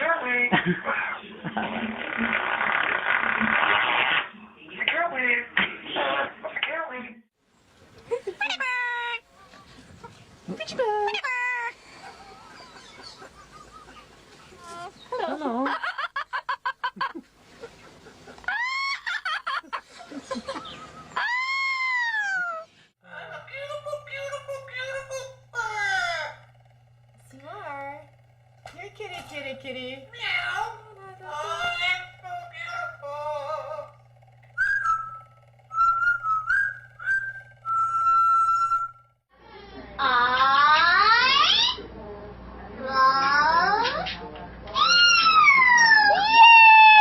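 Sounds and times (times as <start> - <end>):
sound rising in pitch: 30.0 - 39.2
parrot whistling: 34.6 - 39.1.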